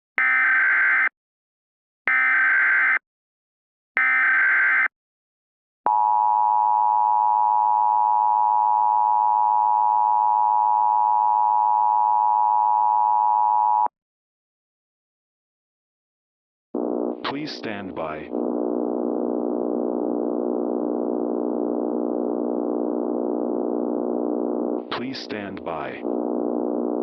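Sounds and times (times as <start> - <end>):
buzzy data bursts: 16.8 - 27.0.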